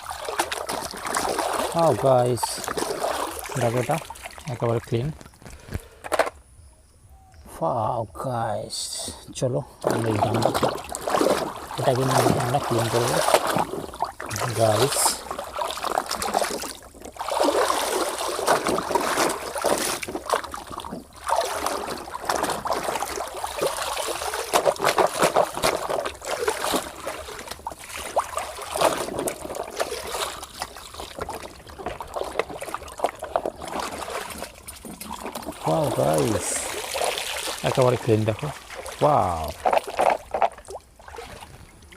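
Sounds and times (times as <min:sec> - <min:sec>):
water sloshing and splashing: 0:00.0 - 0:06.3, 0:09.0 - 0:41.9
wet rubbing: 0:09.9 - 0:41.9.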